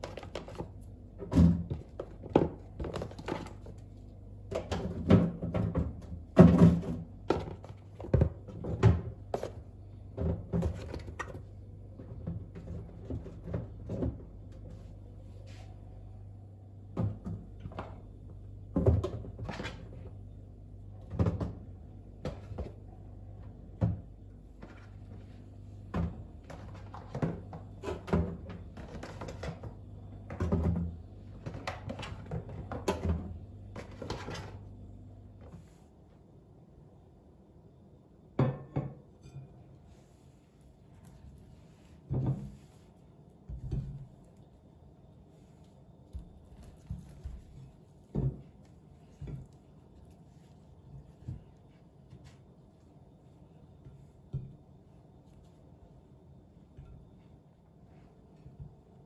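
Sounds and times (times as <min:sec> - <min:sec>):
containers and objects clunking: 0:00.0 - 0:14.6, 0:23.8 - 0:34.7.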